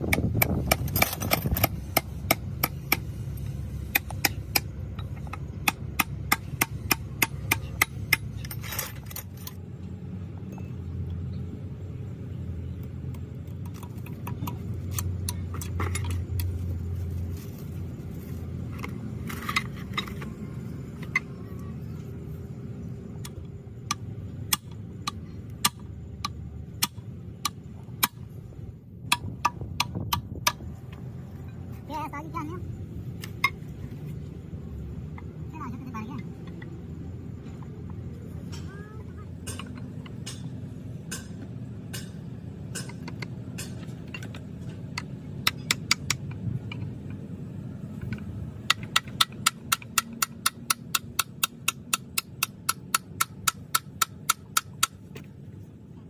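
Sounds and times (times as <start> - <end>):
steady low hum: 0.0 - 56.0
metal tools tapping on metal: 0.1 - 1.7, 38.4 - 46.9, 48.0 - 55.0.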